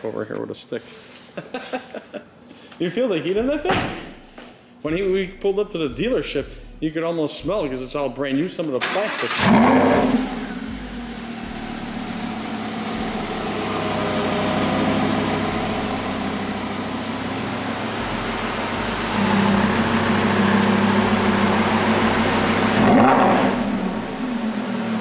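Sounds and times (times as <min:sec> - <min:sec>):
sports car engine idling and revving: 0:09.3 - 0:25.0.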